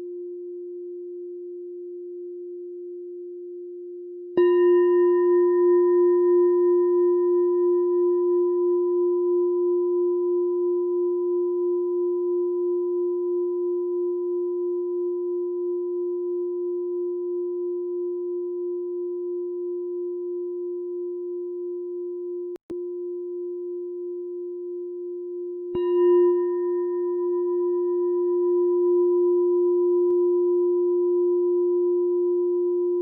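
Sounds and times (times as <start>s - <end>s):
meditation bell ringing: 4.4s - 12.5s, 25.6s - 33.0s.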